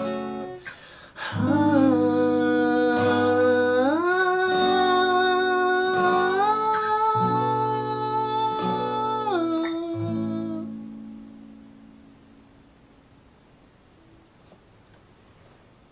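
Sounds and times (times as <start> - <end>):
person singing long notes: 0.0 - 11.0
plucked acoustic guitar chords: 0.0 - 13.4.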